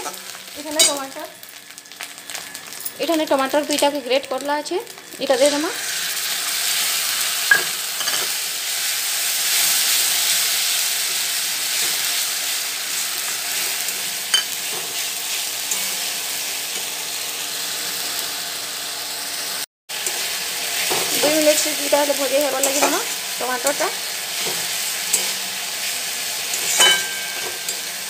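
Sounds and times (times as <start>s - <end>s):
tomato sizzling in a pan: 0.0s - 28.0s
spatula scraping a pan: 26.5s - 27.9s.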